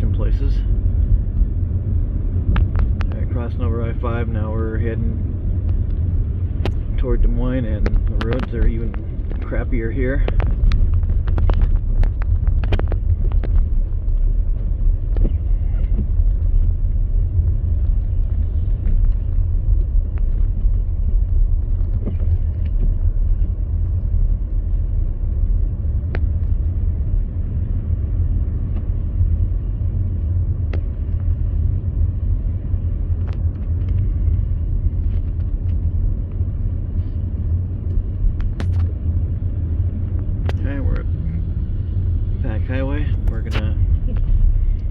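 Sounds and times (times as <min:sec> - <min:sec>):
car engine and tyres rumbling: 0:00.0 - 0:44.9
faint clicks and knocks: 0:10.2 - 0:16.7.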